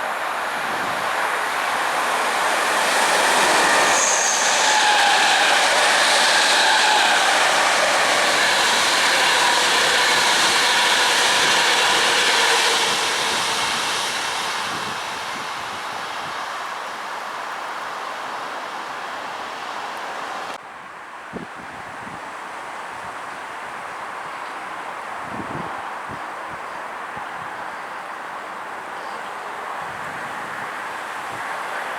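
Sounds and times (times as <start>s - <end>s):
train passing: 0.0s - 20.6s, 29.3s - 31.9s.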